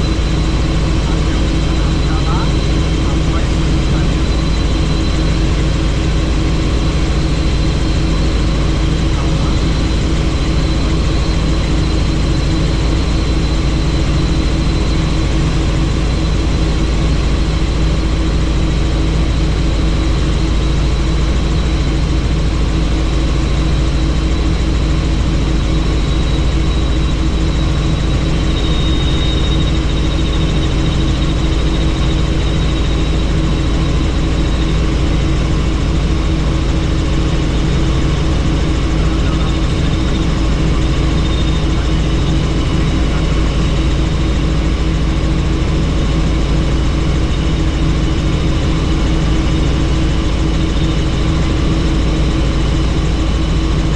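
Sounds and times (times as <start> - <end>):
helicopter rotor and engine drone: 0.0 - 53.9
thin high whine: 26.1 - 53.4.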